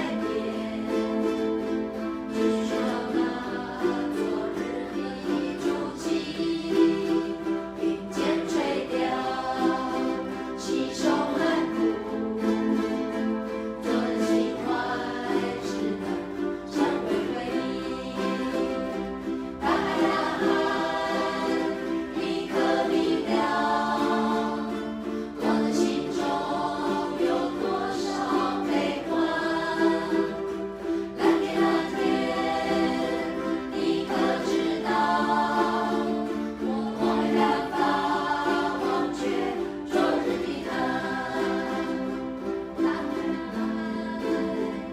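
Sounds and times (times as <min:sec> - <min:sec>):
group of voices singing: 0:00.0 - 0:44.9
ukulele band strumming: 0:00.0 - 0:44.9.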